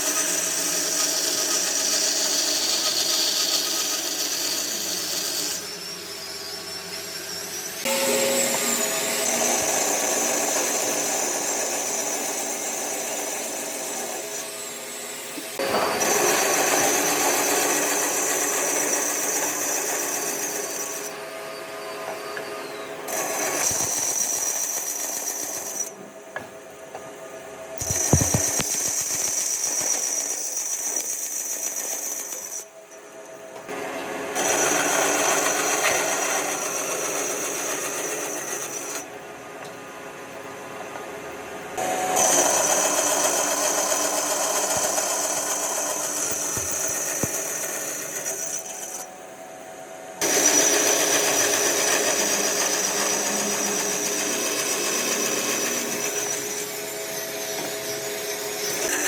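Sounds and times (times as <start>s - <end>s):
power tool motor whining: 22.4s - 26.0s, 27.8s - 32.7s, 41.8s - 49.1s, 50.2s - 59.0s.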